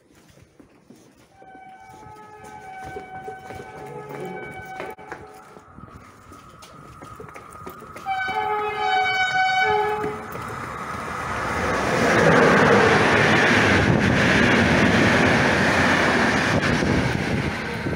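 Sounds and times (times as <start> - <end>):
train wheels rumbling on rails: 1.1 - 17.9
train horn blast: 1.4 - 5.6, 8.0 - 10.3.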